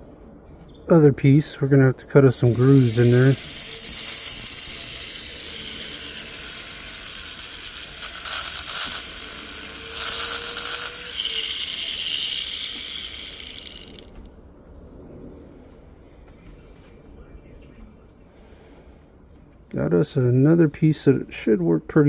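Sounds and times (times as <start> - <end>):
metal tool scraping gold: 2.4 - 14.2.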